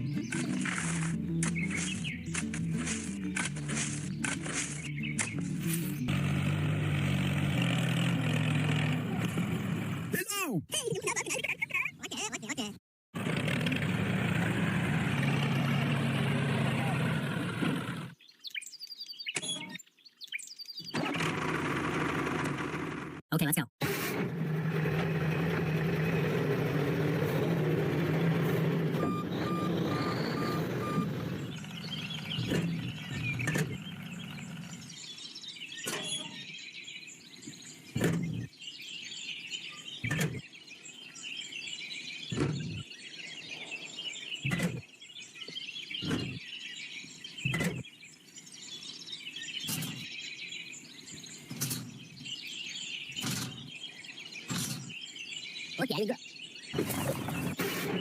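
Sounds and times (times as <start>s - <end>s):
birds chirping: 0.0s - 21.2s, 25.2s - 58.0s.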